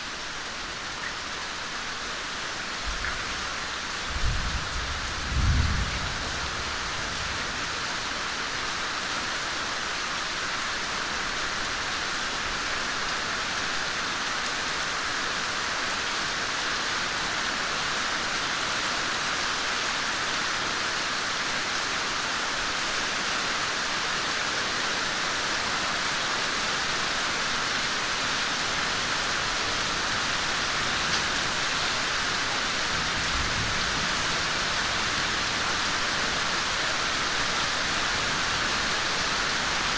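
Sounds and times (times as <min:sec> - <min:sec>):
rain falling and dripping: 0:00.0 - 0:39.9
thunder rumble: 0:04.1 - 0:07.4.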